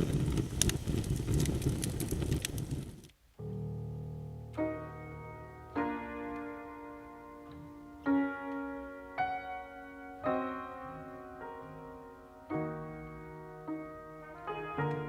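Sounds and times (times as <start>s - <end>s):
slow piano chords: 3.4s - 15.0s.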